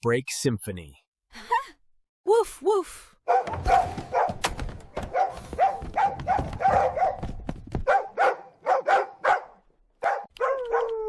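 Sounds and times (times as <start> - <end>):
dog barking: 3.3 - 11.0.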